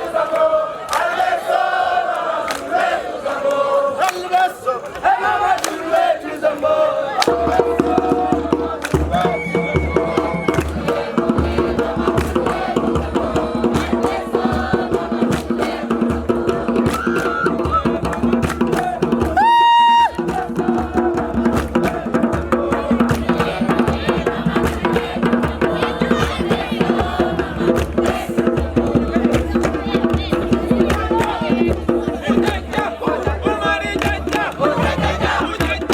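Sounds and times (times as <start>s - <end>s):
group singing: 0.0s - 35.9s
drumming: 5.4s - 35.9s
shrill whistle blast: 9.1s - 10.7s.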